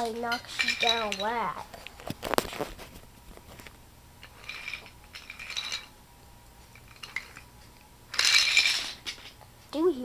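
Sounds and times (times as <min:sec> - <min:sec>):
small hard objects clattering: 0:08.1 - 0:09.4.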